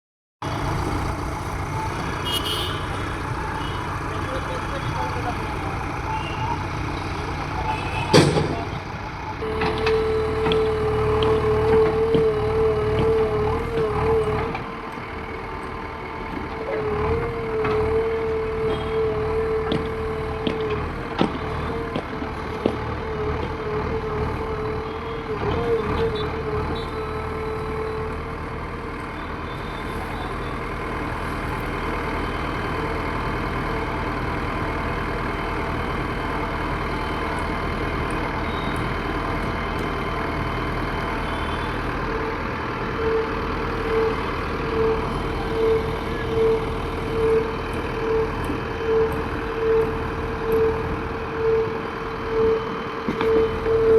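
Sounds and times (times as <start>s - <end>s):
diesel engine running: 0.4s - 53.9s
reversing alarm beeps: 36.8s - 39.3s, 42.9s - 53.9s.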